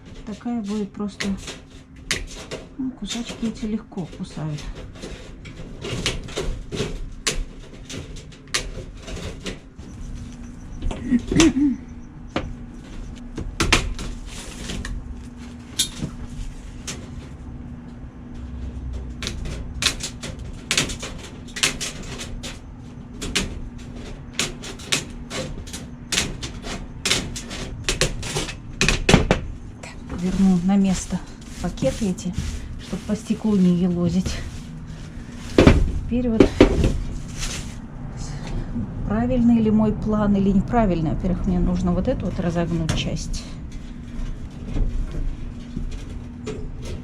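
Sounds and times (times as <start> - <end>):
metal cutters snipping wire mesh: 18.9 - 29.3.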